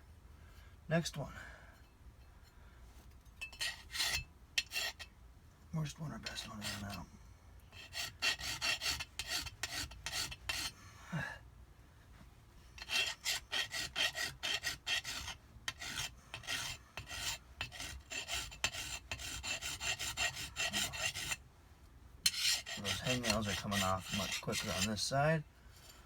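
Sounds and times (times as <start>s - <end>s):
hand file rasping on metal: 3.4s - 5.1s, 6.2s - 7.0s, 7.7s - 10.8s, 12.8s - 21.4s, 22.2s - 25.1s.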